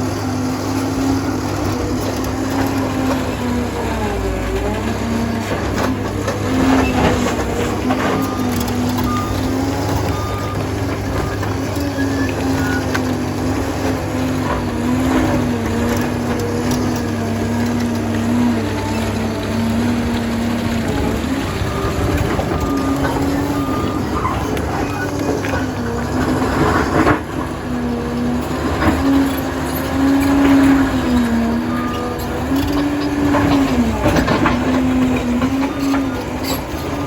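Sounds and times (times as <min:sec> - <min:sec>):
dozer diesel engine droning: 0:00.0 - 0:37.0.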